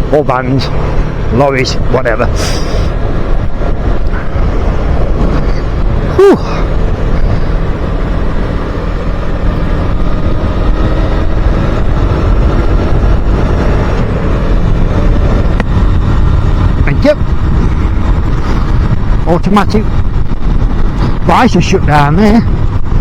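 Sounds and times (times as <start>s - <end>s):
motorcycle engine running: 0.0s - 23.0s
wind buffeting microphone: 0.0s - 23.0s
person exclaiming whew: 6.1s - 6.7s.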